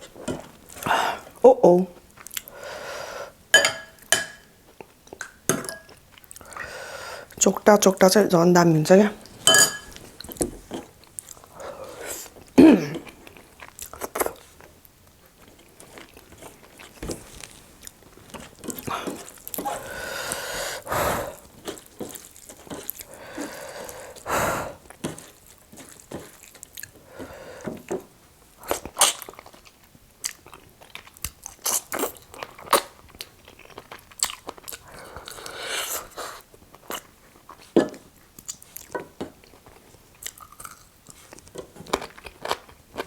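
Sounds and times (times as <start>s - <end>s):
crunchy chewing: 21.4s - 27.1s, 28.6s - 37.8s, 38.4s - 43.0s.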